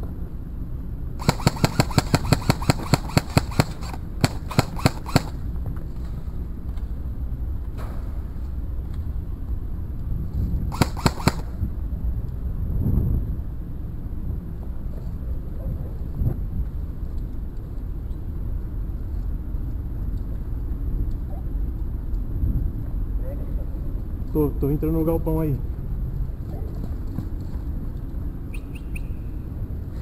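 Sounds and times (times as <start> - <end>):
airsoft rifle shots: 1.2 - 5.5, 10.7 - 11.6
wind rumble on microphone: 5.4 - 24.8.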